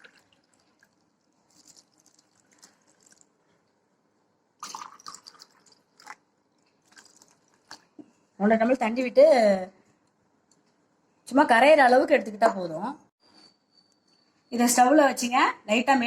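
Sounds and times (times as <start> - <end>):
water splash: 0.0 - 2.8
water trickling: 0.0 - 3.4, 4.6 - 8.0.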